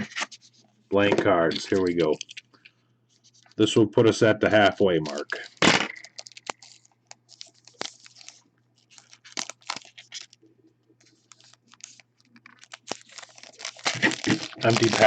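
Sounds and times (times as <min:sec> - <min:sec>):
wrapper tearing and crinkling: 0:01.3 - 0:02.5, 0:04.6 - 0:10.4, 0:11.0 - 0:15.0.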